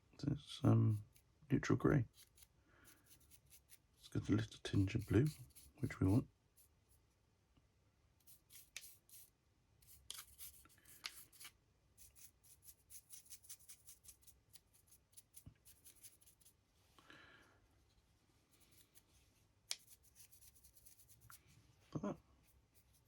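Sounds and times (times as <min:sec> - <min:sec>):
paintbrush scratching on plastic: 0:00.7 - 0:01.3, 0:02.0 - 0:07.1, 0:08.2 - 0:16.6, 0:18.5 - 0:21.6, 0:22.3 - 0:23.0.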